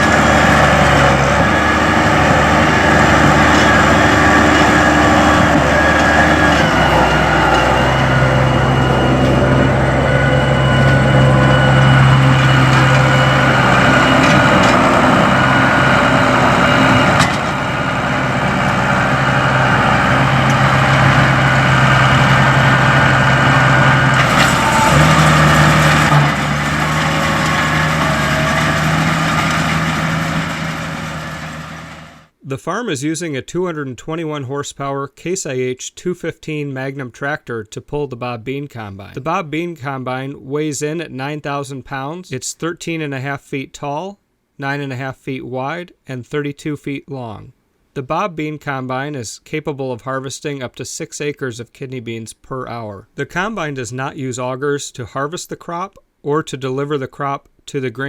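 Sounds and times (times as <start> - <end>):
tractor engine running: 0.0 - 32.4.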